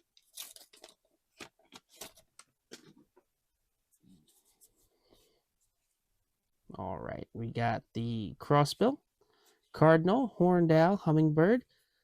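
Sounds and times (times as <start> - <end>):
trading cards shuffling: 0.1 - 3.0.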